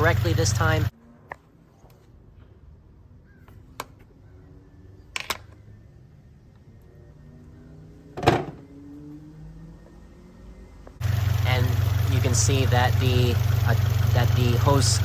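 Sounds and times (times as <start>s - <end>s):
car engine idling faintly: 0.0s - 0.9s, 11.0s - 15.0s.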